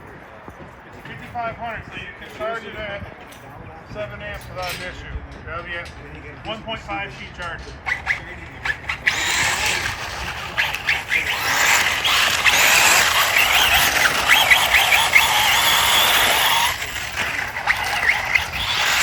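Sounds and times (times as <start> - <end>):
electric motor whining: 7.9 - 19.0.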